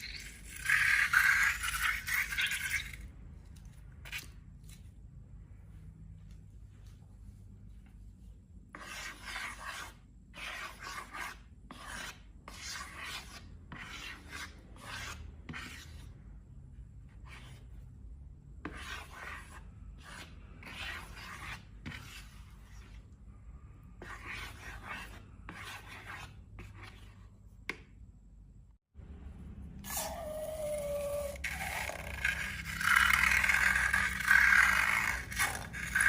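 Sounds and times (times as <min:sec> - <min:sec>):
slime rasping and rubbing: 0:29.8 - 0:36.0.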